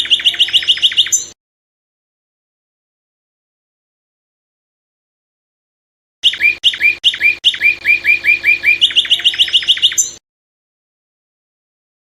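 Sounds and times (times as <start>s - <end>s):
songbird whistled notes: 0.0s - 1.4s, 6.2s - 10.2s.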